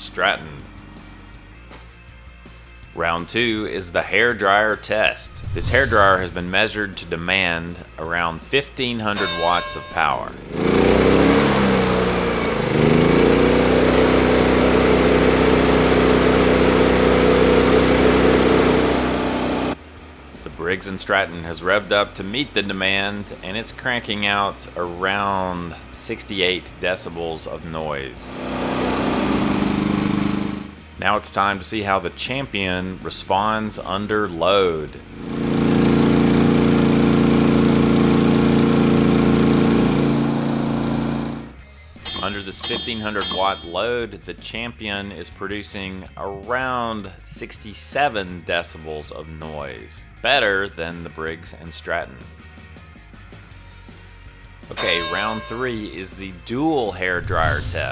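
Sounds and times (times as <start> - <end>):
generator engine revving: 10.4 - 19.8, 28.4 - 30.7, 35.4 - 41.5.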